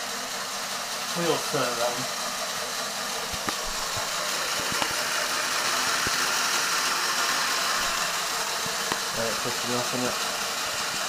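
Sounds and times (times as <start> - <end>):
small electric motor whirring: 0.0 - 11.0.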